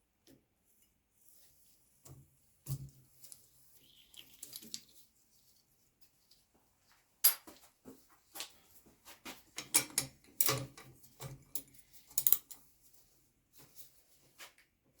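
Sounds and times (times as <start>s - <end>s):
hand tools clicking and clanking: 9.6s - 12.5s.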